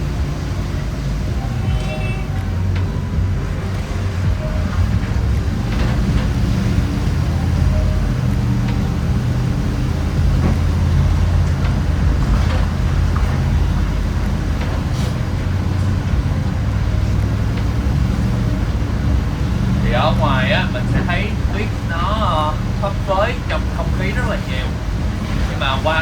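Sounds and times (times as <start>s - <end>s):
vehicle engine hum: 0.0s - 26.0s.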